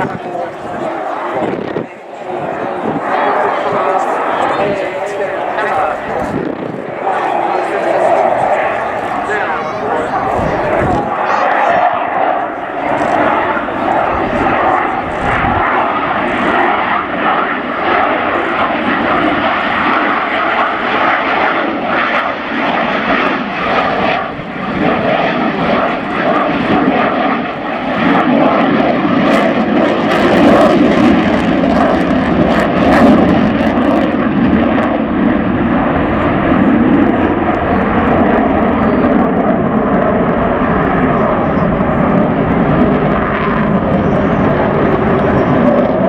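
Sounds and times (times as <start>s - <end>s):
jet engines roaring: 0.0s - 46.0s.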